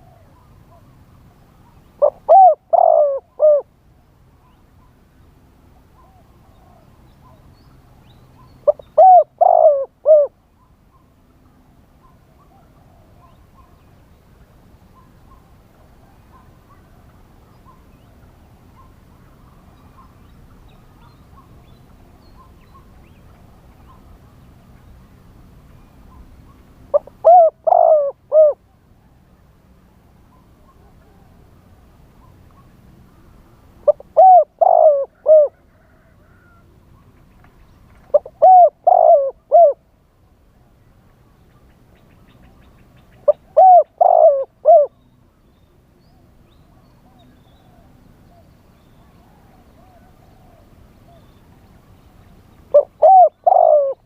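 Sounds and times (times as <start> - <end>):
dove cooing: 0.0 - 0.9, 1.6 - 3.7, 8.4 - 10.4, 26.9 - 28.8, 33.8 - 36.7, 38.0 - 39.9, 43.2 - 45.0, 47.0 - 51.4, 52.7 - 54.0
faint small bird calls: 0.0 - 39.9, 40.7 - 54.0.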